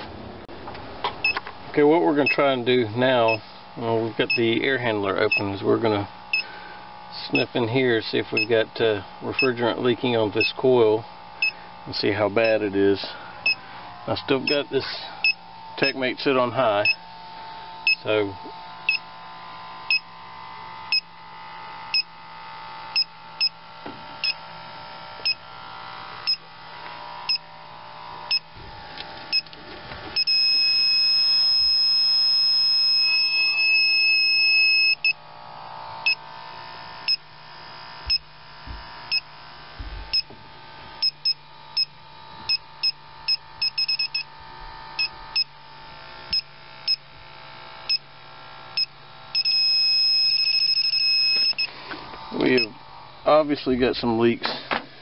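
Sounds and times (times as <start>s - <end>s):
low steady hum: 0.0s - 55.0s
steady alarm tone: 1.2s - 29.5s, 30.1s - 39.4s, 40.0s - 40.4s, 41.0s - 47.1s, 47.8s - 53.4s
leak detector short beeps: 11.4s - 11.6s, 17.8s - 18.1s, 18.9s - 19.1s, 19.9s - 20.1s, 21.9s - 22.1s, 23.0s - 23.6s, 28.3s - 28.5s, 30.2s - 35.2s, 36.0s - 36.2s, 39.1s - 39.3s, 41.0s - 44.3s, 45.0s - 45.5s, 46.3s - 47.0s, 48.8s - 51.7s, 52.6s - 52.8s.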